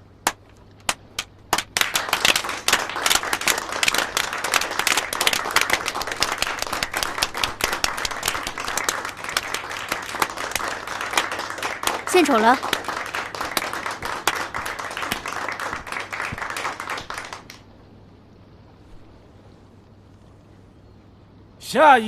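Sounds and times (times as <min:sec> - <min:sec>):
crowd clapping: 0:00.3 - 0:17.7.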